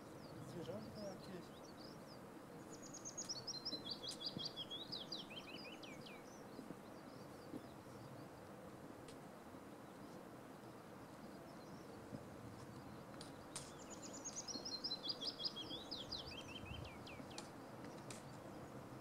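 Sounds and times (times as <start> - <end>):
low outdoor background rush: 0.0 - 19.0
songbird singing: 0.0 - 19.0.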